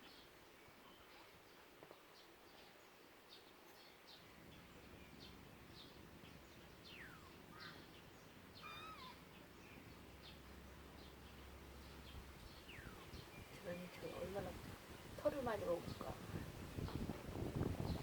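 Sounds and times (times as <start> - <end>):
birds chirping: 0.0 - 18.0
bird wavering call: 8.6 - 9.2.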